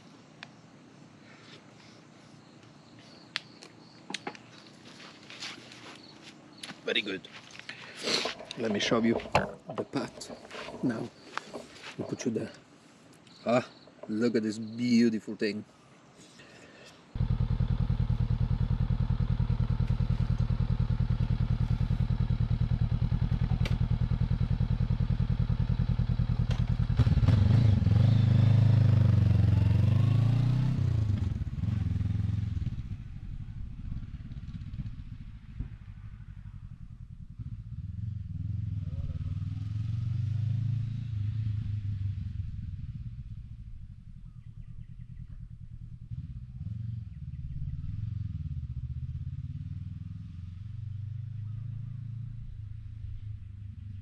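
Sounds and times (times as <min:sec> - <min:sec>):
motorcycle revving and pulling away: 0:07.9 - 0:12.2, 0:17.1 - 0:54.0
motorcycle engine idling: 0:17.2 - 0:29.6, 0:31.0 - 0:39.4, 0:42.3 - 0:54.0.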